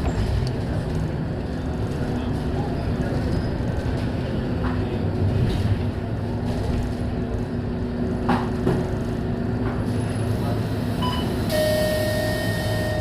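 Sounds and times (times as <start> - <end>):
bus engine drone: 0.0 - 13.0
road rumble: 0.0 - 13.0.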